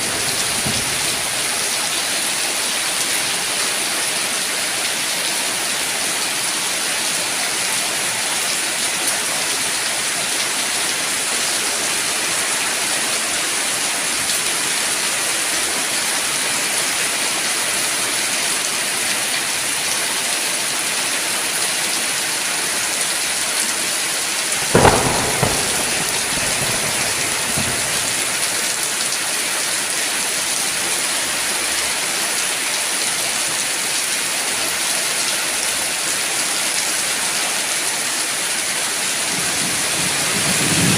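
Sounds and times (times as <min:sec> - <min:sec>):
steady heavy rain: 0:00.0 - 0:40.9
sharp thunderclap with rumble: 0:24.6 - 0:28.8.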